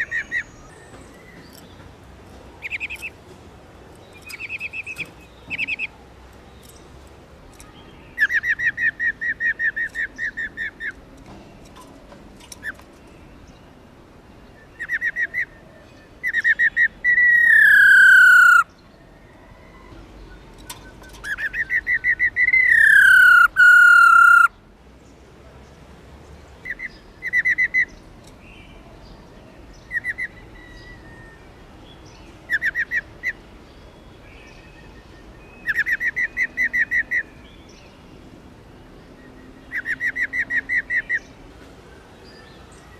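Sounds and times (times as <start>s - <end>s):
bird rolling trilled call: 21.1s - 24.5s.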